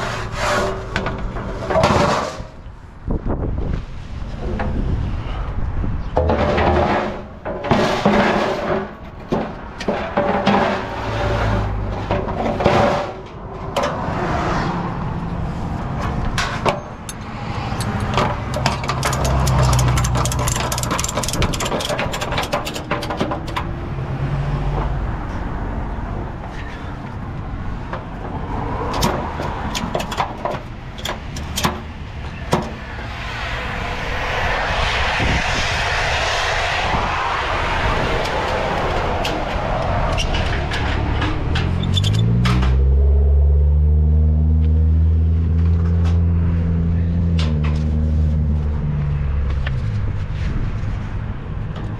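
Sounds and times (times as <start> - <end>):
heavy truck engine rumble: 0.0 - 51.9
sharp clicks and knocks: 16.0 - 23.8, 27.9 - 32.8
hissing rush: 32.0 - 41.5.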